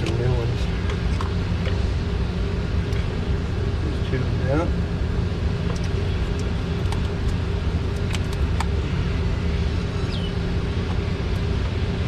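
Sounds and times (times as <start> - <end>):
light clicks and taps of engine parts: 0.0 - 1.8, 5.6 - 8.8
low mechanical rumble and hum: 0.0 - 12.0.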